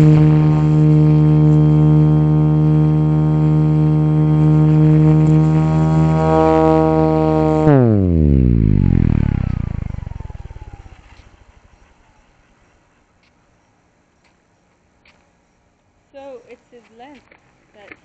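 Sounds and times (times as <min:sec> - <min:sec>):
model helicopter rotor winding down: 0:00.0 - 0:12.5.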